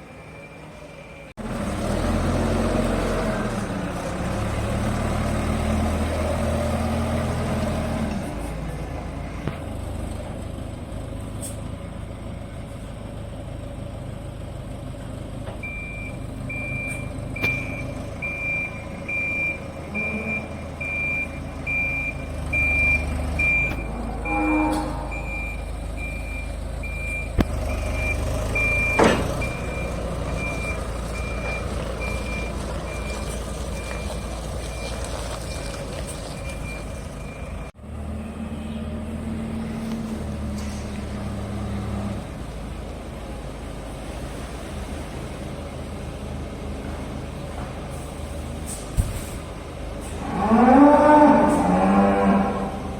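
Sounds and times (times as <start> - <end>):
diesel engine running: 0.0 - 52.9
reversing alarm beeping: 15.6 - 35.8.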